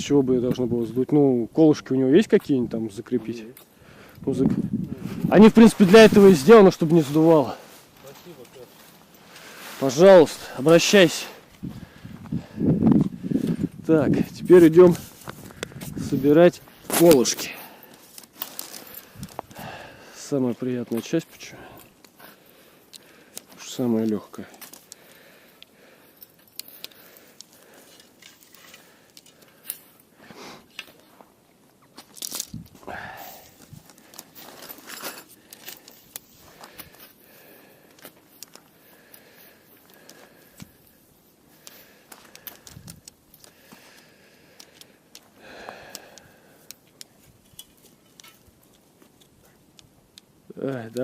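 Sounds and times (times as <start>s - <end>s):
rustling: 14.4s - 45.4s
tent pegs clicking: 21.8s - 31.1s, 31.8s - 32.8s, 33.5s - 51.0s.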